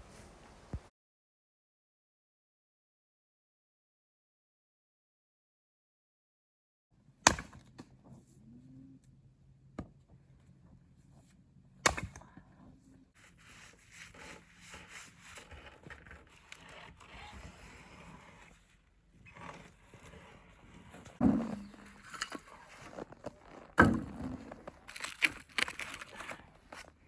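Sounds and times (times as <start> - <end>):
rustling and scraping: 13.2 - 27.0.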